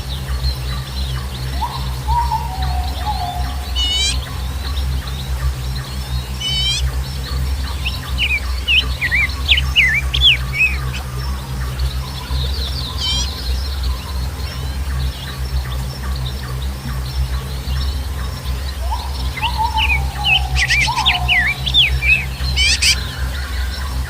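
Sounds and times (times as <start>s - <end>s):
steady low rumble: 0.0s - 24.0s
birds calling falling notes: 1.1s - 24.0s.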